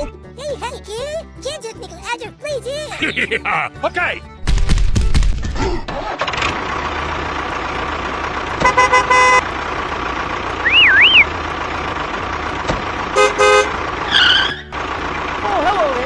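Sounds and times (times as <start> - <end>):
vehicle engine running: 4.3 - 16.0
horn honks: 8.6 - 9.8, 10.6 - 11.4, 13.0 - 14.7
warbling tone: 10.6 - 11.4.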